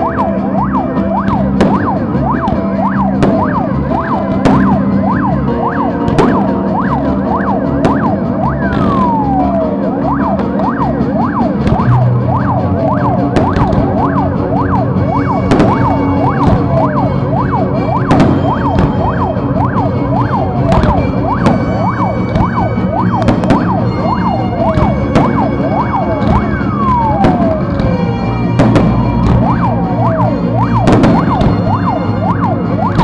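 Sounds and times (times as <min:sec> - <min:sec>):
whistling fireworks: 0:00.0 - 0:33.0
firework shells bursting: 0:30.9 - 0:32.1.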